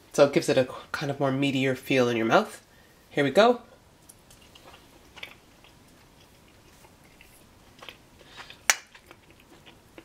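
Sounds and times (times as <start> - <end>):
person chewing food: 4.1 - 10.0.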